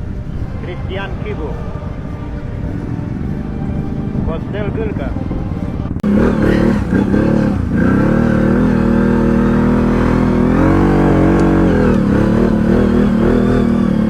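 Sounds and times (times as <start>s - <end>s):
atv engine running under load: 6.0s - 14.0s.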